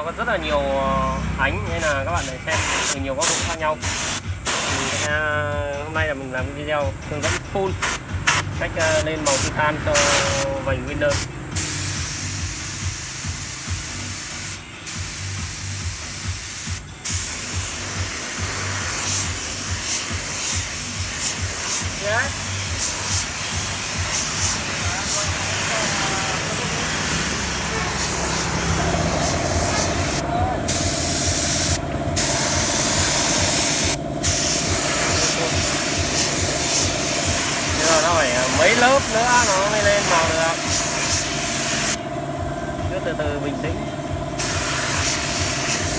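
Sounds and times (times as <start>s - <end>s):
paint spray hissing: 1.7s - 5.2s, 7.2s - 42.0s, 44.4s - 45.9s
low mechanical rumble: 5.2s - 14.8s, 20.6s - 45.9s.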